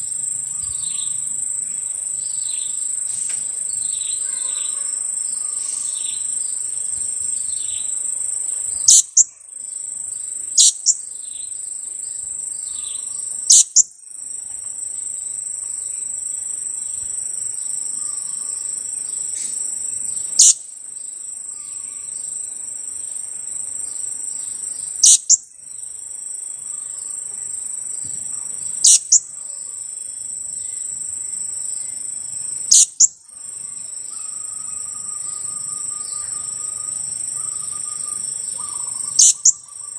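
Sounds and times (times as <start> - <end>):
high insect trill: 0.0 - 39.9
parrot sharp high calls: 28.8 - 29.2, 38.7 - 39.6.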